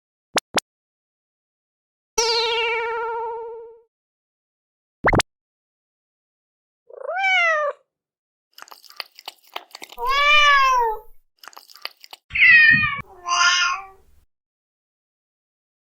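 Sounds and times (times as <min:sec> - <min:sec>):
kitten meowing: 0:06.9 - 0:07.8, 0:10.0 - 0:11.2, 0:12.3 - 0:14.1.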